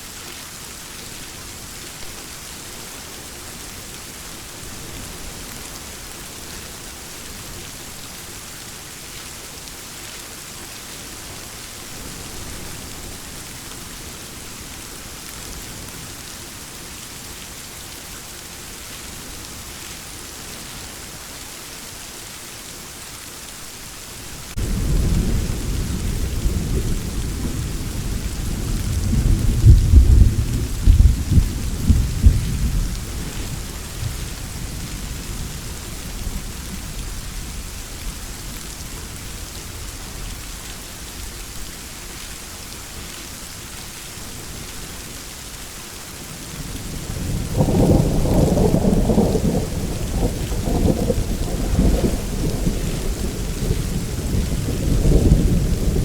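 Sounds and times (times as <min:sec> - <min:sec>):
steady rain: 0:00.0 - 0:56.0
thunder rumbling and cracking: 0:24.6 - 0:37.8, 0:46.8 - 0:56.0.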